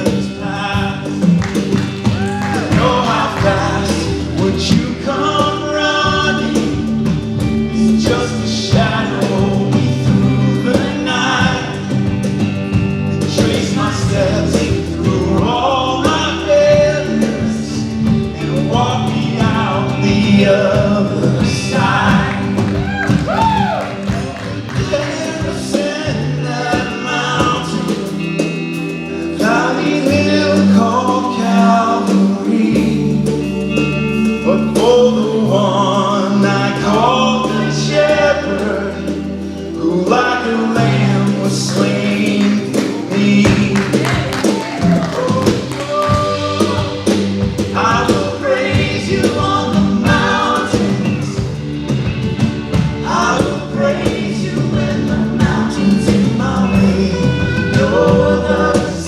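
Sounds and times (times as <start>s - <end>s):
band playing worship music: 0.0s - 59.0s
people singing: 0.0s - 59.0s
sustained bass notes: 0.0s - 59.0s
drum beat: 0.1s - 15.6s, 19.4s - 26.2s, 41.4s - 54.4s.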